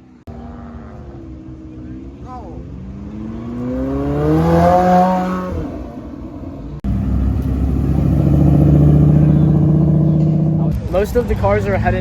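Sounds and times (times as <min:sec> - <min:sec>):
car engine revving: 0:00.2 - 0:12.0
loud engine running steadily: 0:06.8 - 0:12.0.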